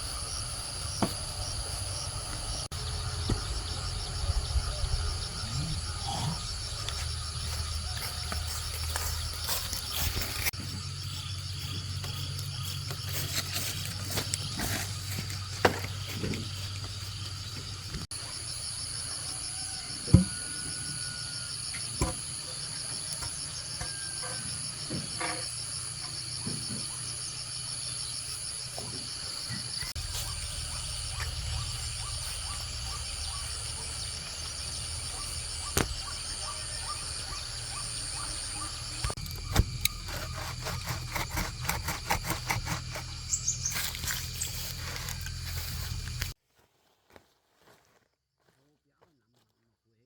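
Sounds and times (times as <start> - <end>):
insects chirring: 0.0 - 46.4
rapid pulsing insect trill: 16.4 - 46.4.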